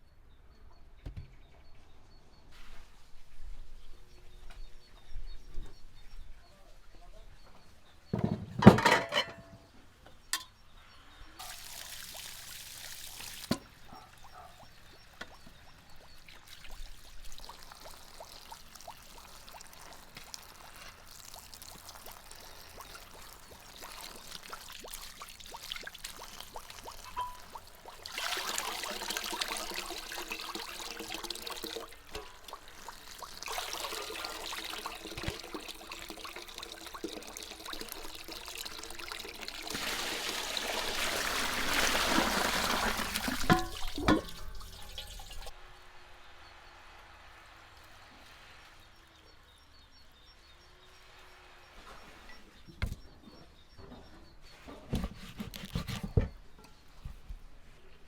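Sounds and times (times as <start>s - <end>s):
water pouring and trickling: 11.3s - 45.6s.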